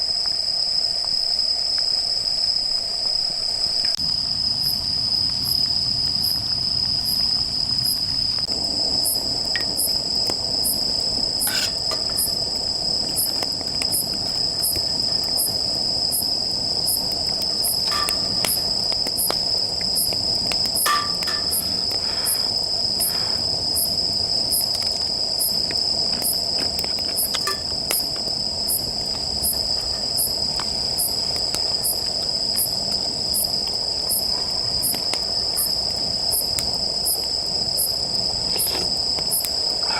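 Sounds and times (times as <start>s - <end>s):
high-pitched insect chirp: 0.0s - 26.5s
grass insects trilling: 0.0s - 39.9s
wood fire crackling: 0.1s - 39.9s.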